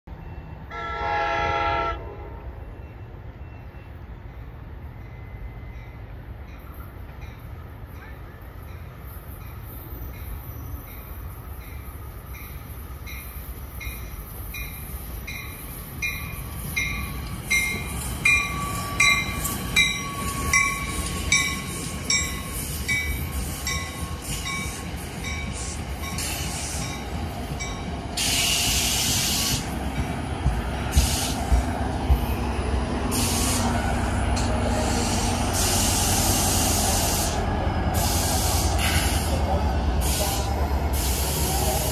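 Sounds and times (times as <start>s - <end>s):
rumble of train coaches: 0.0s - 41.9s
locomotive drone: 0.1s - 41.9s
train wheels clicking over rail joints: 16.1s - 36.5s.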